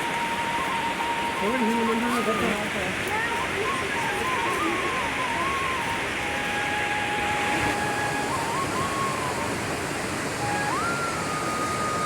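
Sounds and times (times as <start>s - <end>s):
whistle-like tone rising: 0.0s - 2.6s, 3.3s - 12.0s
water rushing: 0.0s - 12.0s.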